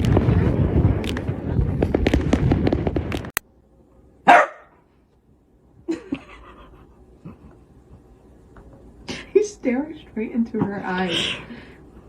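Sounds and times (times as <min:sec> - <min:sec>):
crackling pops: 0:00.0 - 0:03.5
dog barking: 0:04.2 - 0:04.8.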